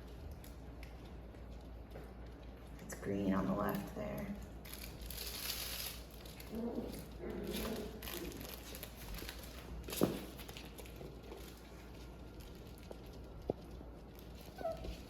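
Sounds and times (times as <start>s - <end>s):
puppies scuffling and rustling: 0.0s - 15.0s
faint puppy vocal sounds: 6.4s - 9.0s, 12.9s - 15.0s.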